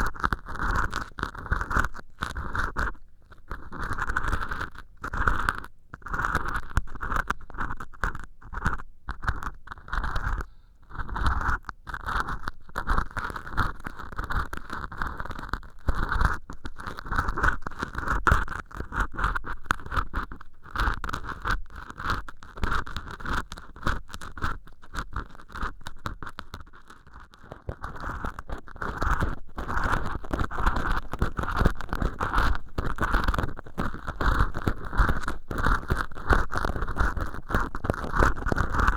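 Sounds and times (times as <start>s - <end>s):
ear pick scratching sponge: 0.0s - 38.9s.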